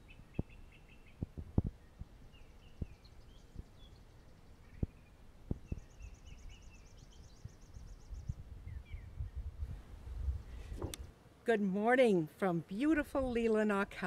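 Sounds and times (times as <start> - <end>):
songbirds chirping: 0.0 - 14.0
soft thumps: 10.6 - 11.1.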